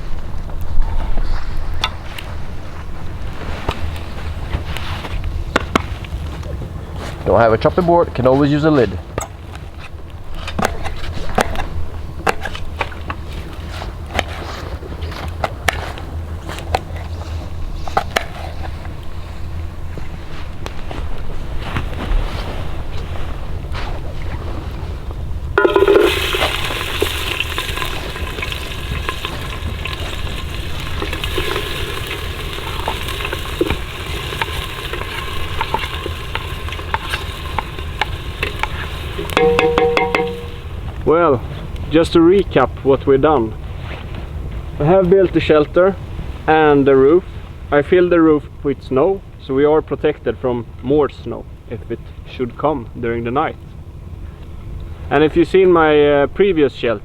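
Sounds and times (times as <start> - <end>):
low wind rumble: 0.0 - 9.1
food sizzling in a pan: 25.6 - 40.8.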